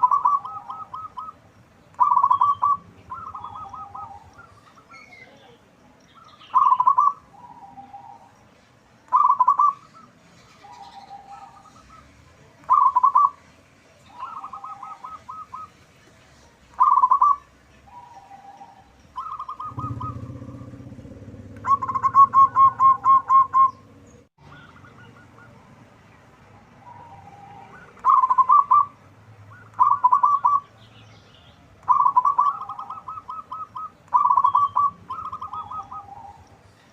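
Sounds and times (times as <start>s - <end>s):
dove cooing: 0.0s - 4.9s, 6.5s - 8.3s, 9.1s - 12.1s, 12.7s - 13.4s, 14.1s - 15.8s, 16.8s - 25.7s, 26.8s - 30.7s, 31.8s - 36.4s
low rumble: 19.6s - 24.3s.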